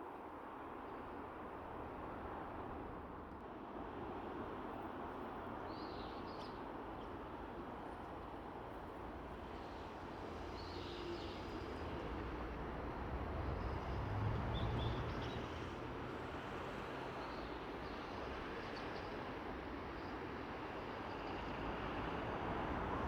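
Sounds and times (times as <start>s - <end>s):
steady outdoor noise: 0.0s - 23.0s
passing vehicle rumble: 12.0s - 16.9s.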